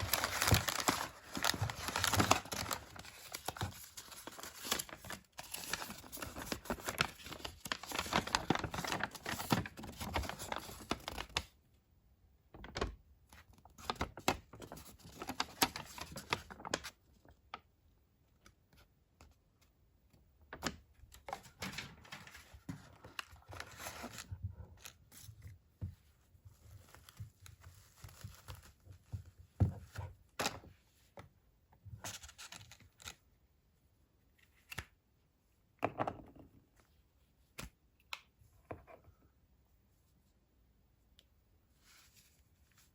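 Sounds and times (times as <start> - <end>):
packaging tearing and crinkling: 0.0 - 11.4.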